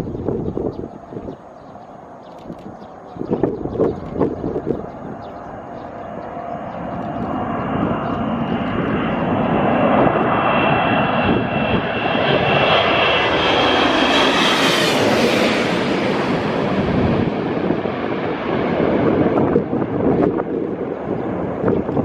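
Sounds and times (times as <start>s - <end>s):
high whine of engine fans: 0.0s - 22.0s
jet airliner passing overhead: 0.0s - 22.0s.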